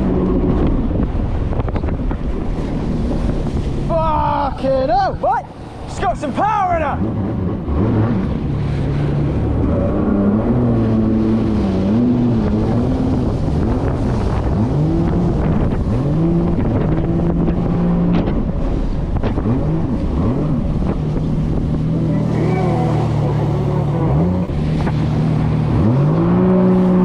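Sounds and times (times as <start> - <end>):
wind buffeting microphone: 0.0 - 27.0
jet ski engine revving: 5.5 - 27.0.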